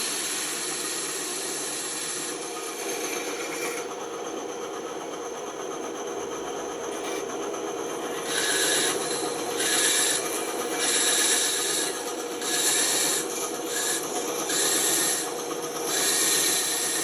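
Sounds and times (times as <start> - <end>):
saw blade cutting wood: 0.0 - 3.9, 6.9 - 7.3, 8.0 - 17.0
band saw running: 0.0 - 17.0.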